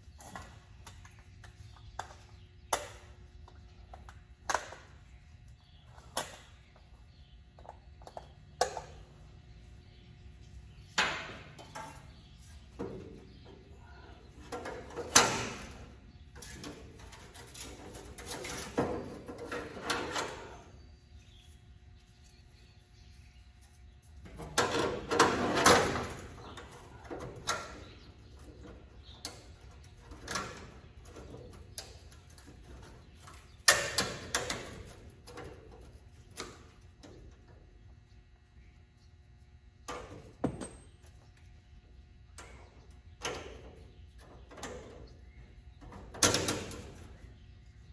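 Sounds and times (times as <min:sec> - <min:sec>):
metal tools clanking and rattling: 0:40.4 - 0:41.2.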